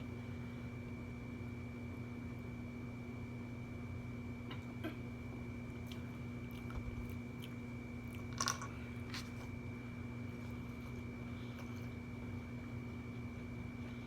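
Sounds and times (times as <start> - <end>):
steady electrical hum: 0.0 - 14.0
person chewing food: 5.7 - 9.5.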